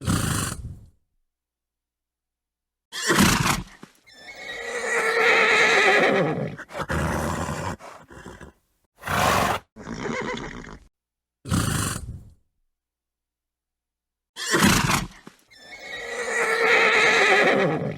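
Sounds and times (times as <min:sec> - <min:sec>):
horse whinnying: 0:04.1 - 0:10.9, 0:14.4 - 0:17.9
horse snorting: 0:06.6 - 0:10.9.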